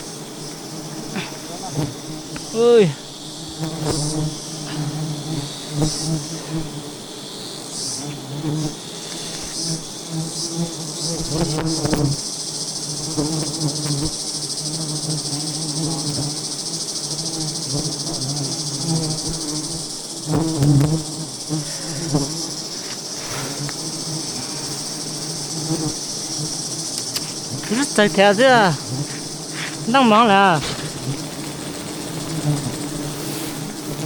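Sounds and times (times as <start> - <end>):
bees buzzing: 0.0 - 34.0
high insect drone: 0.0 - 34.0.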